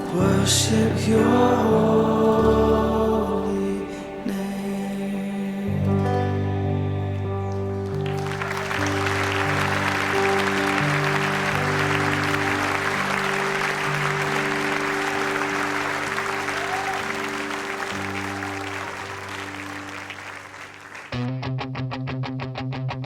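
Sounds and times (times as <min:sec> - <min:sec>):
worship song closing chords: 0:00.0 - 0:21.1
audience applause: 0:07.4 - 0:21.2
strummed guitar intro: 0:21.1 - 0:23.0.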